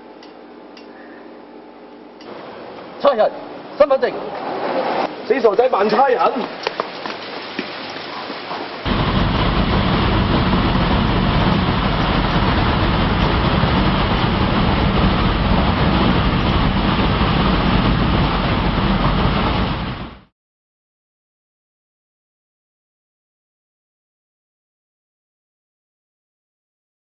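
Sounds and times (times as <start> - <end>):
loud rushing noise with low rumble: 8.9 - 20.3.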